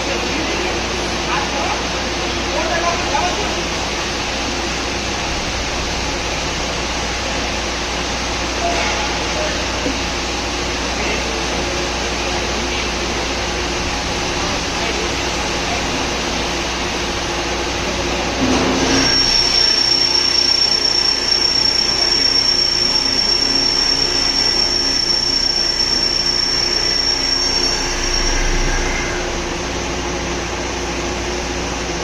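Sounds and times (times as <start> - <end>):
high-pitched machine whine: 0.0 - 32.0
drilling machine humming: 9.6 - 32.0.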